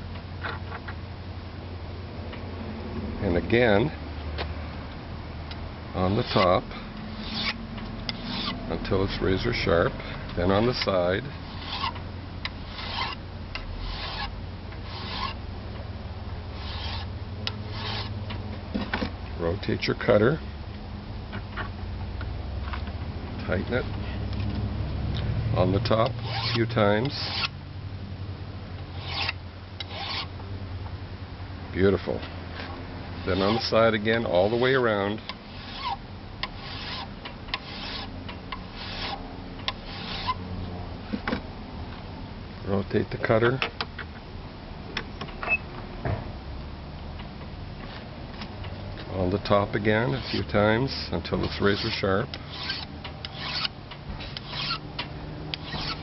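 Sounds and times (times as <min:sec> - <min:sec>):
file stroking metal blade: 0:06.1 - 0:08.6, 0:10.6 - 0:12.0, 0:12.6 - 0:13.2, 0:13.8 - 0:15.4, 0:16.6 - 0:17.1, 0:17.7 - 0:18.1, 0:25.8 - 0:27.5, 0:28.9 - 0:30.3, 0:33.2 - 0:38.1, 0:38.7 - 0:39.2, 0:39.8 - 0:40.4, 0:50.0 - 0:54.8, 0:55.5 - 0:56.0.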